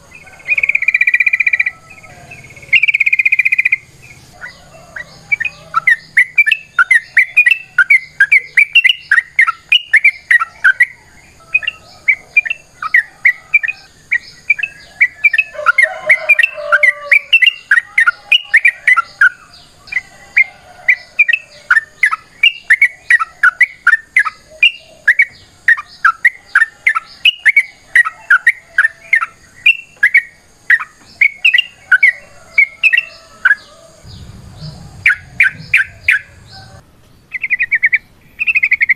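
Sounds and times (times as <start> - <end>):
bird chattering rapidly: 2.4 - 4.6, 32.8 - 38.9.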